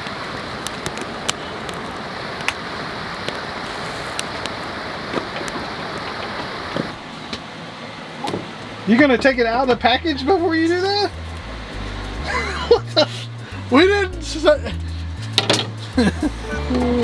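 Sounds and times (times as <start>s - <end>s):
campfire crackling and popping: 0.0s - 7.5s
rushing hiss: 0.0s - 8.8s.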